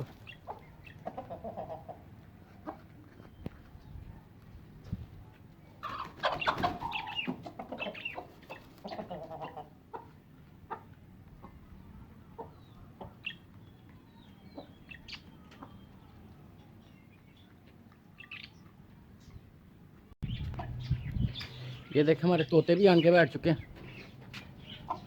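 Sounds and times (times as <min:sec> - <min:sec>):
hens clucking: 0:00.0 - 0:03.2, 0:05.8 - 0:13.6, 0:14.5 - 0:15.9, 0:23.0 - 0:25.0.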